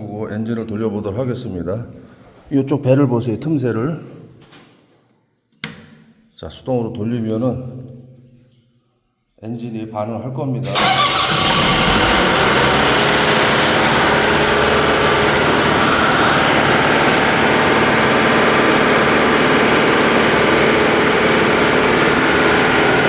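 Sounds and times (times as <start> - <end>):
fire pump engine running: 10.7 - 23.0.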